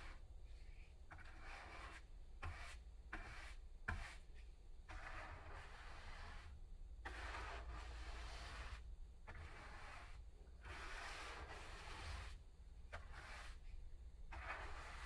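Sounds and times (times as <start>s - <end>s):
abrasive strokes on paint: 4.9s - 13.7s, 14.3s - 15.0s.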